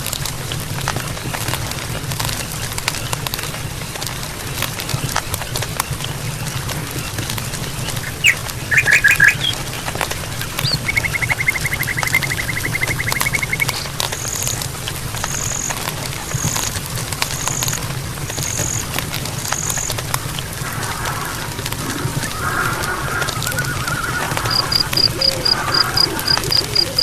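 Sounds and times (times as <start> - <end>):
birds calling: 4.8 - 27.0
bird trill: 7.0 - 14.6, 20.6 - 27.0
scattered clicks: 7.2 - 23.0.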